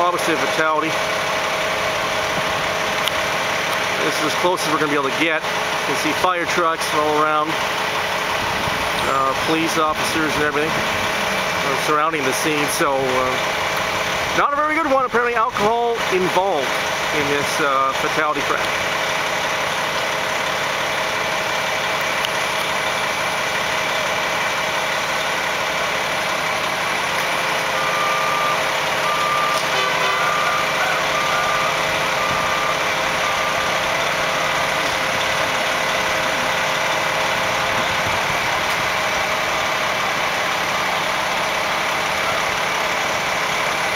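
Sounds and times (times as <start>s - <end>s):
fire truck engines idling: 0.0s - 43.9s
reversing beeper beeps: 27.7s - 34.6s.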